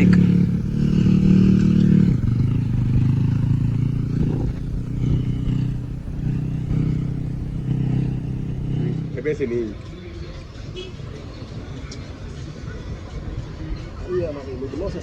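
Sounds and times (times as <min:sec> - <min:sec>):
dirt bike engine running: 0:00.0 - 0:09.6.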